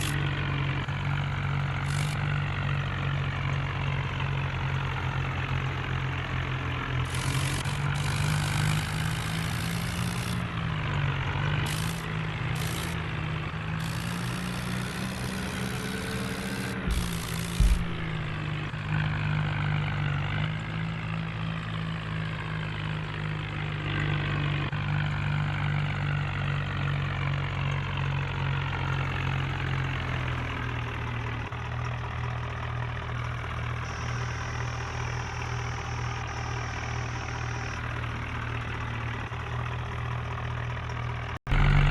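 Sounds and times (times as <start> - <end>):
diesel tractor engine running: 0.0 - 41.9
short thumps: 16.8 - 18.6.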